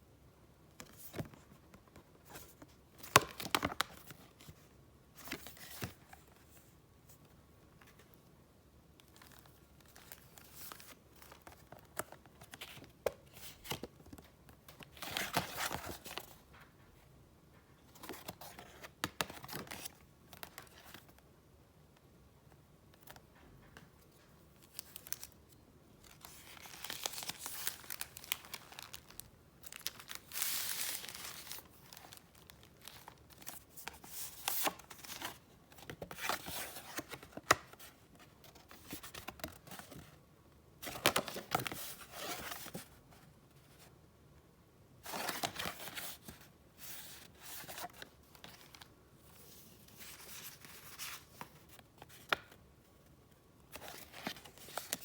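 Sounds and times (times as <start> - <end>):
paper rustling: 26.0 - 37.8.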